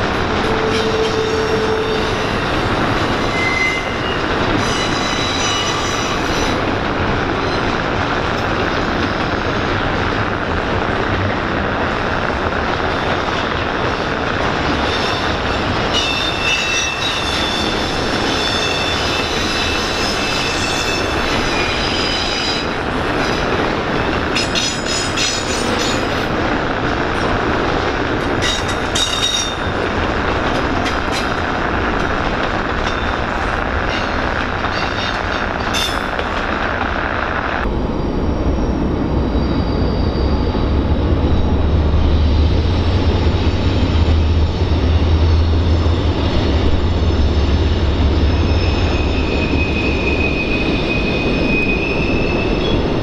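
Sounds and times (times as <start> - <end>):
freight train rolling past: 0.0 - 53.0
high-pitched wheel squeals: 0.5 - 2.5, 3.1 - 6.6, 48.1 - 52.9.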